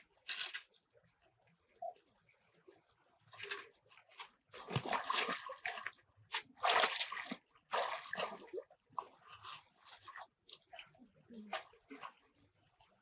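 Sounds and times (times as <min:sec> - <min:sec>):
water splashing: 0:03.3 - 0:12.5.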